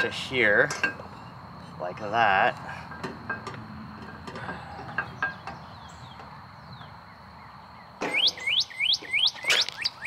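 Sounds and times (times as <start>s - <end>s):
songbird whistling rising notes: 5.4s - 10.0s.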